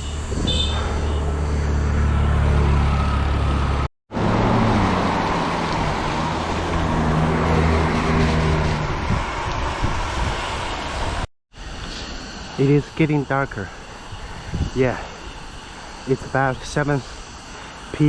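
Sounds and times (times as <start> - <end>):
vehicle engine and road noise: 0.0 - 11.3.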